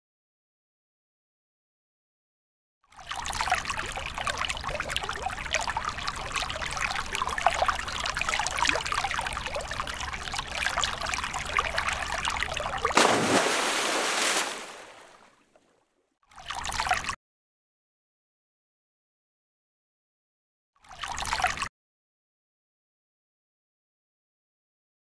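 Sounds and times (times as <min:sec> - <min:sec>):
water stream splashing into well: 0:02.9 - 0:15.7.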